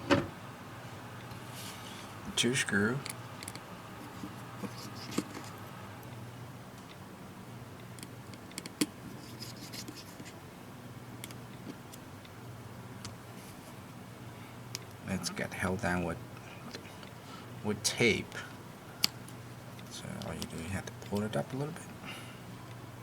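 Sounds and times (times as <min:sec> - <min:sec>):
steady low hum: 0:00.0 - 0:23.0
screwdriver clicking and scratching: 0:03.4 - 0:05.5.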